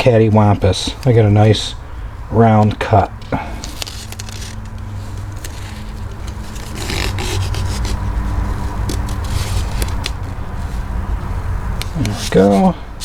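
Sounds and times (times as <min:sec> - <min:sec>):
tape unrolling: 0:02.6 - 0:10.9, 0:11.8 - 0:12.8
tape scraping and rubbing: 0:03.2 - 0:12.8.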